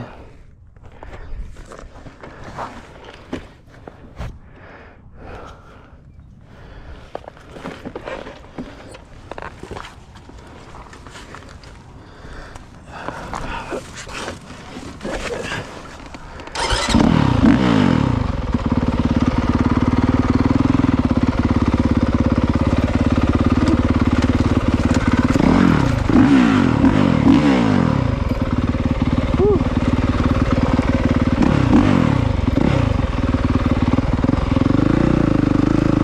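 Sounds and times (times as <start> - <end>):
motorcycle engine starting and revving: 16.3 - 36.0.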